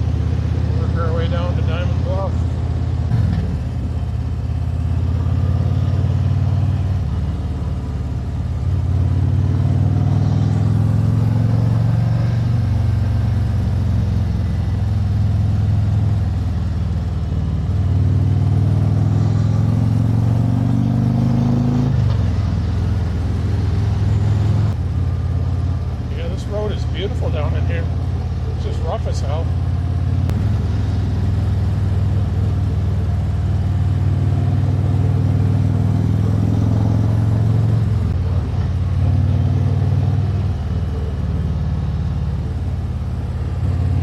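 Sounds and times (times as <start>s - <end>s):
motorcycle engine accelerating: 0.0s - 44.0s.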